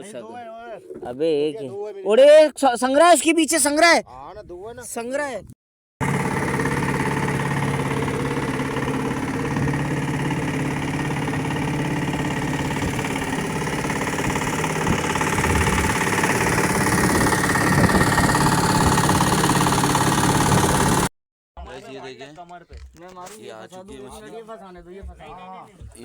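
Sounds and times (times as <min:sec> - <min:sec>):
boat engine droning: 0:06.0 - 0:21.1.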